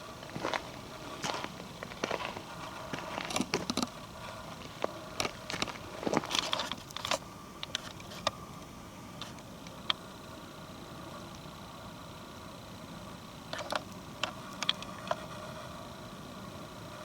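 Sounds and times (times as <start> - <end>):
footsteps crunching on dry twigs: 0.2 - 6.8.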